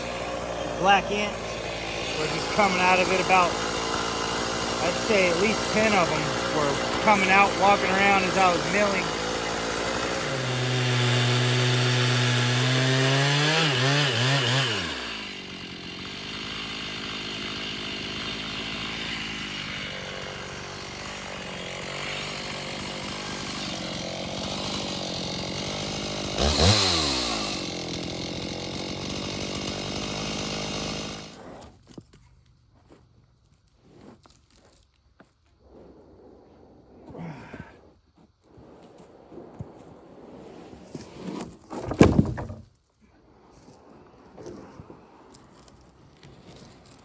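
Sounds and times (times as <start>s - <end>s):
chainsaw revving and idling: 0.0s - 31.8s, 40.9s - 42.6s, 44.5s - 47.0s.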